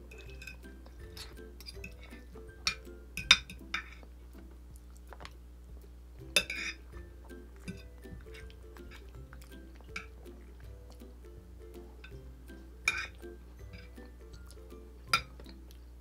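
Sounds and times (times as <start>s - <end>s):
quiet background music: 0.0s - 16.0s
cutlery clinking on a plate: 0.1s - 4.1s, 6.4s - 6.8s, 12.9s - 14.0s, 15.1s - 15.6s.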